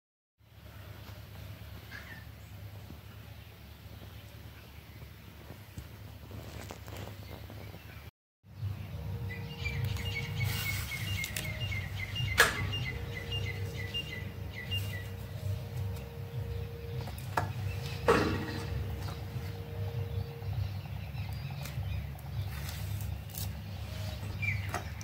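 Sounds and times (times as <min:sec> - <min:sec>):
bird chirping: 0:06.5 - 0:25.0
steady low hum: 0:08.5 - 0:25.0
handling knocks: 0:17.0 - 0:19.4
sharp knock: 0:18.0 - 0:18.8.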